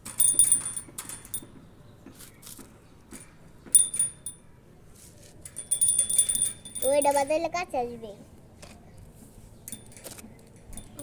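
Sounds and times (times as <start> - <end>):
metal jingle rattle shaken: 0.0 - 1.5, 3.8 - 4.4, 5.5 - 7.5, 9.7 - 11.0.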